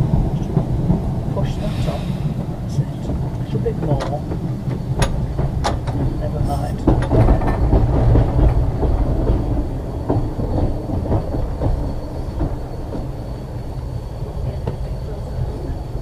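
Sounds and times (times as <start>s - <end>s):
tram wheels rumbling: 0.0s - 16.0s
clicks over rail joints: 3.0s - 13.0s.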